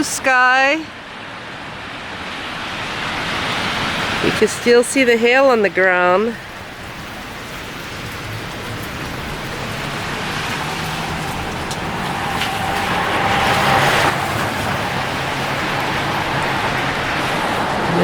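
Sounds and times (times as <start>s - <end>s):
low engine hum: 2.6s - 18.0s
tyre hiss on wet road: 6.4s - 17.9s.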